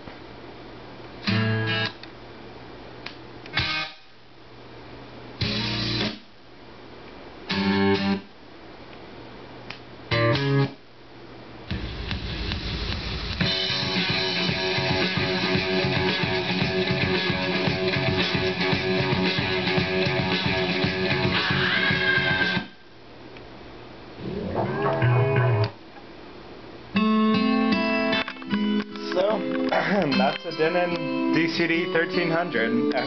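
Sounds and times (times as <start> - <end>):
guitar rock music through speakers: 1.2 - 2.0, 3.5 - 4.2, 5.4 - 6.4, 7.5 - 8.3, 10.1 - 10.8, 11.7 - 22.8, 24.2 - 25.8, 27.0 - 33.0.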